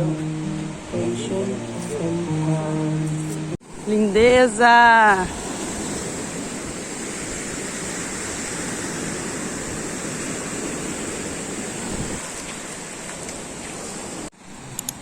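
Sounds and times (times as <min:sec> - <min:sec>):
water rushing: 0:00.0 - 0:14.3.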